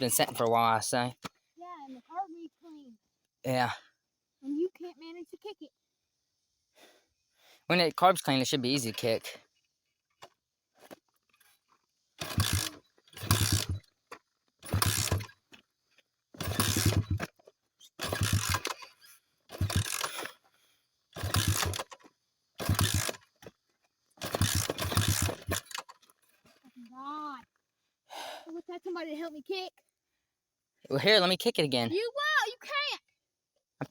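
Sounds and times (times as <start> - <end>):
dirt bike being kick-started: 10.2 - 15.6, 16.3 - 20.5, 21.1 - 27.0
engine turning over briefly: 12.2 - 13.8, 14.6 - 15.3, 16.4 - 17.3, 18.0 - 20.4, 21.2 - 22.0, 22.6 - 23.2, 24.2 - 25.9.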